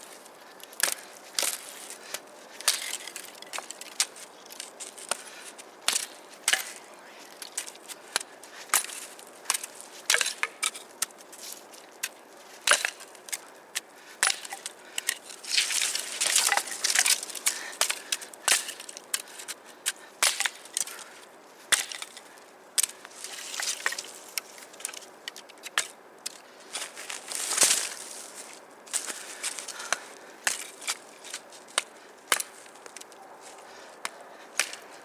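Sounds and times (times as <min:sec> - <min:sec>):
dry wood snapping: 0:00.5 - 0:06.8, 0:07.4 - 0:11.2, 0:11.9 - 0:21.1, 0:21.7 - 0:28.1, 0:28.9 - 0:33.2, 0:34.0 - 0:34.9
rustling: 0:26.4 - 0:31.8.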